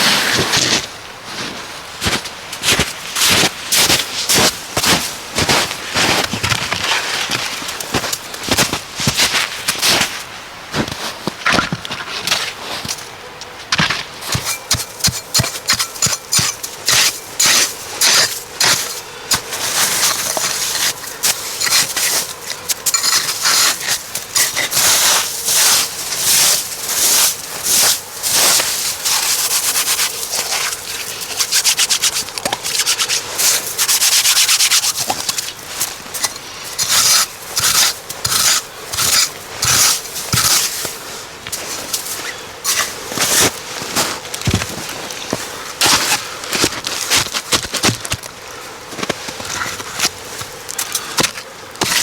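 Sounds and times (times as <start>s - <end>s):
scraping strokes: 14.2s - 44.1s.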